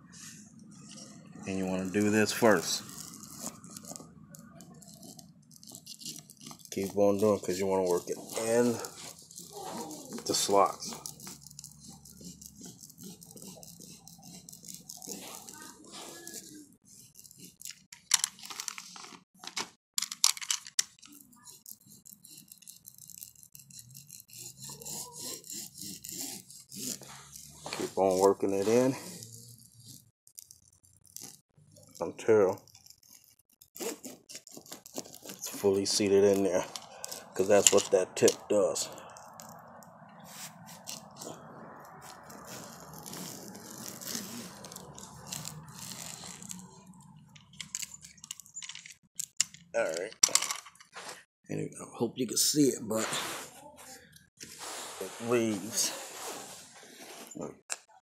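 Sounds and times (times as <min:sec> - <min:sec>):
rubbing and handling: 0:00.1 - 0:51.3, 0:54.4 - 0:57.6
spline roller scratchy clicks: 0:02.0 - 0:16.5, 0:21.0 - 0:38.4, 0:40.5 - 0:49.4.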